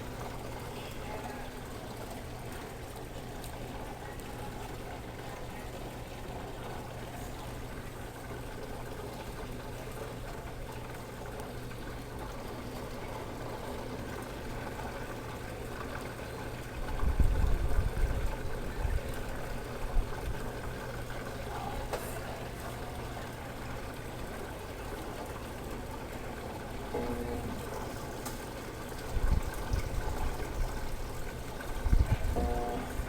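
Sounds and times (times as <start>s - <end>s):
water running into washing machine: 0.0s - 33.0s
low machine hum: 16.4s - 33.0s.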